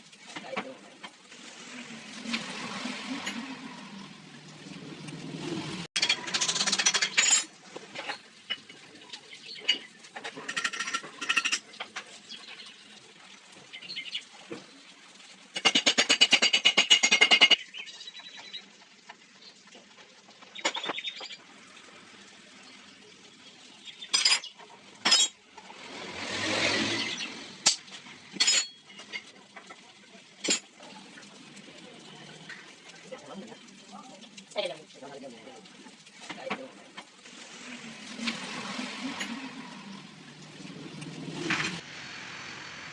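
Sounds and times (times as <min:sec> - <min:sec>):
metal tools clinking: 0:06.0 - 0:08.2, 0:24.2 - 0:25.4, 0:28.4 - 0:29.3.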